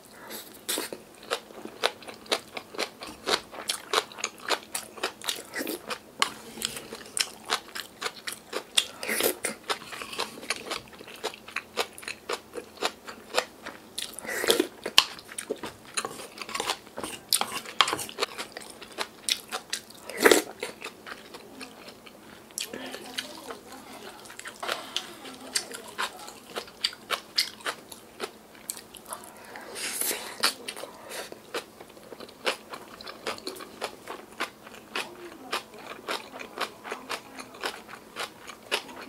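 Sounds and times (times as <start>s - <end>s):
crunchy chewing: 0.2s - 39.0s.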